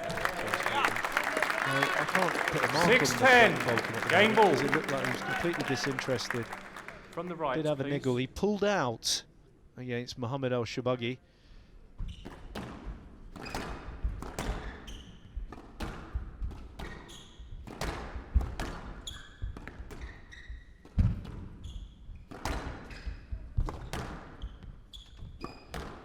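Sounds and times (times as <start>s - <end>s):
court shoes squeaking: 12.0s - 15.6s, 16.8s - 17.8s, 18.6s - 26.0s.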